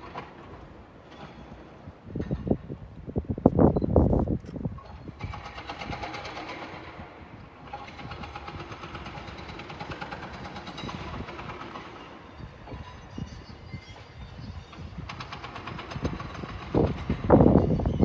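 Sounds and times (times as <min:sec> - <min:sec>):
train rattling on rails: 0:00.0 - 0:02.8, 0:04.7 - 0:18.0
fast clicking of rails: 0:04.8 - 0:13.0, 0:14.7 - 0:18.0.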